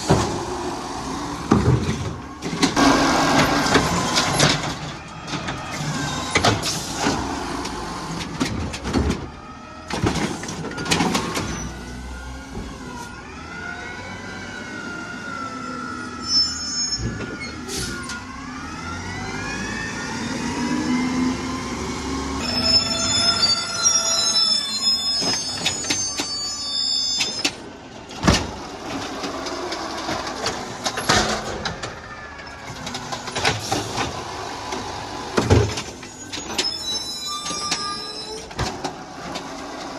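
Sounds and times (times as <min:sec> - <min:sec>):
garbage truck engine: 0:00.0 - 0:39.9
metal bins banging and clanking: 0:01.3 - 0:07.4
high squealing: 0:16.2 - 0:17.7, 0:22.4 - 0:27.6, 0:36.1 - 0:38.6.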